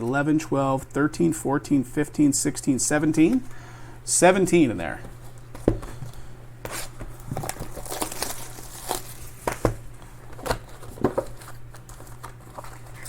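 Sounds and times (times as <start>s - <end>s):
packaging crinkling: 5.0s - 13.0s.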